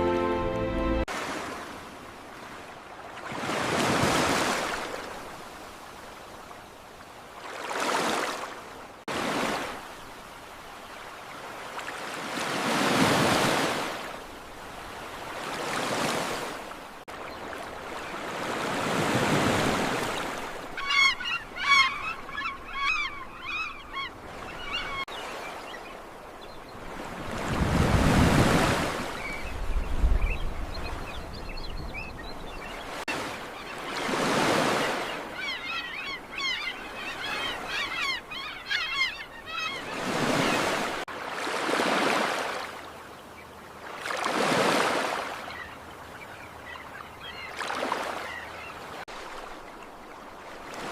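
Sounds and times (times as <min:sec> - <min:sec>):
ocean waves washing in: 0:00.0 - 0:20.8.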